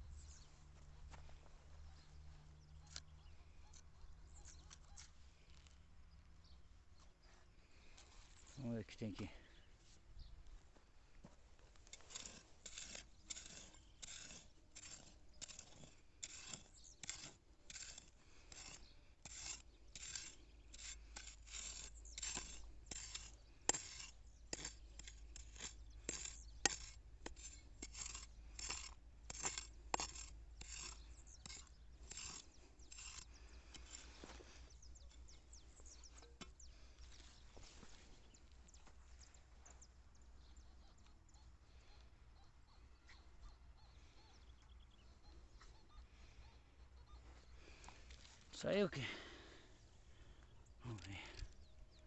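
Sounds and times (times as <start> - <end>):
digging tool scraping soil: 11.2 - 40.6
tool clicking on stones: 11.8 - 36.8.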